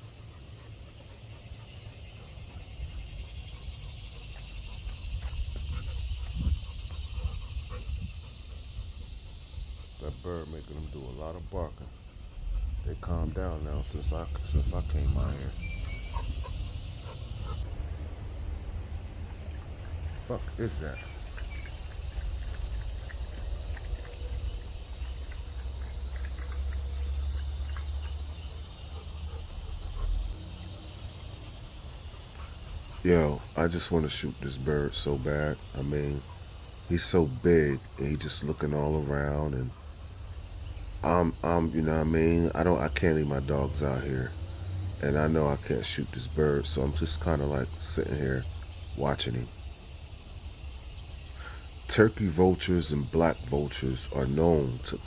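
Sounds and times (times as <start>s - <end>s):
low rumble on microphone: 0.0s - 49.6s
high-pitched insect hiss: 0.0s - 55.0s
wind rumble on microphone: 4.7s - 9.9s, 11.3s - 24.7s.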